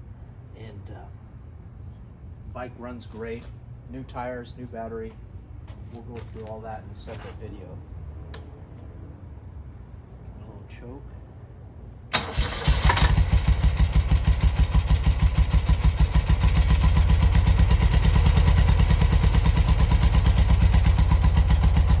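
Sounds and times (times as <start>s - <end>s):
motorcycle engine starting and idling: 12.1s - 22.0s.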